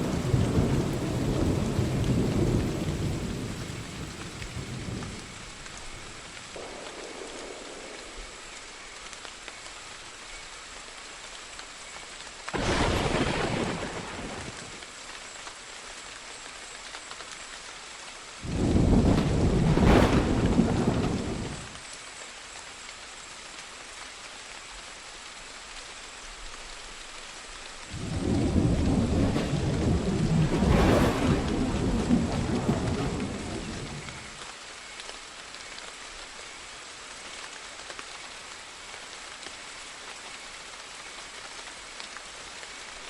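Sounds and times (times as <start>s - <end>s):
rolling thunder: 0.0s - 8.4s, 12.6s - 14.8s, 18.4s - 21.8s, 27.9s - 34.4s
steady rain: 0.0s - 43.0s.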